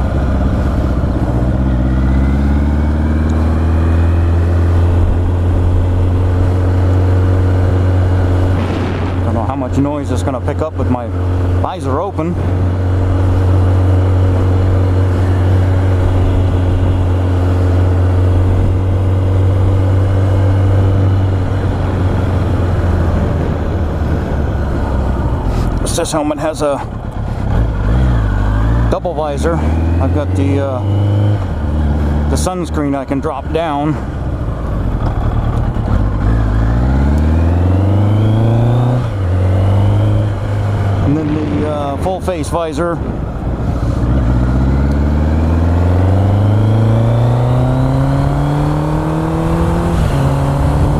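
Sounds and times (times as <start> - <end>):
motorcycle engine drone: 0.0 - 50.9
wind rush: 21.0 - 25.9.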